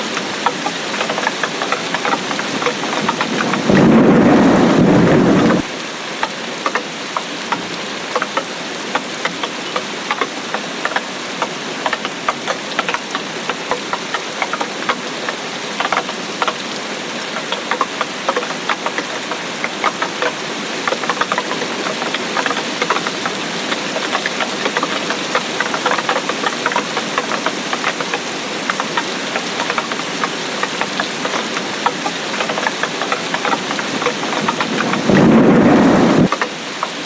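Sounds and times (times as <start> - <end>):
raindrops ticking on hard surface: 0.0 - 37.0
deep rush of noise: 3.3 - 5.7, 34.2 - 36.3.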